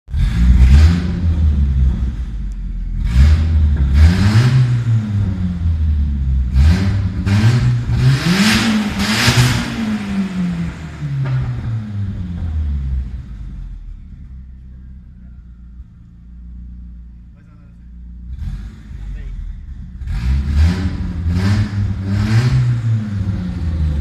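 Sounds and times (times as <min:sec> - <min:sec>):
car engine revving: 0:00.1 - 0:24.0.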